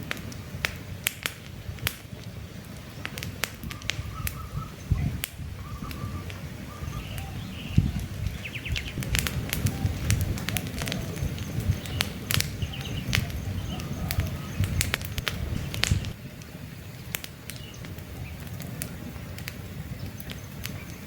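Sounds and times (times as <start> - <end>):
campfire crackling and popping: 0.0 - 21.0
low rumble of burning: 0.0 - 21.0
faint bird chirps: 2.8 - 14.8.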